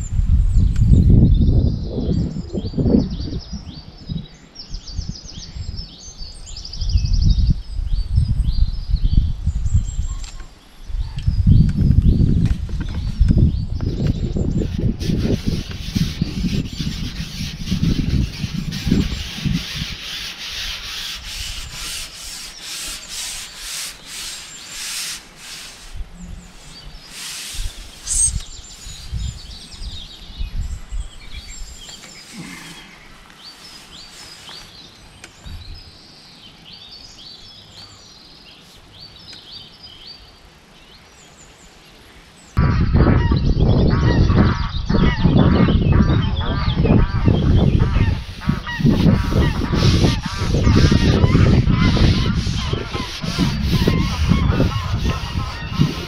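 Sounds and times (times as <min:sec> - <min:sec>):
wind buffeting microphone: 0:00.0 - 0:34.6, 0:35.4 - 0:36.0, 0:42.6 - 0:56.0
small birds chirping: 0:00.5 - 0:56.0
rubbing and scraping handling noise: 0:13.9 - 0:29.7, 0:31.6 - 0:35.0, 0:47.8 - 0:56.0.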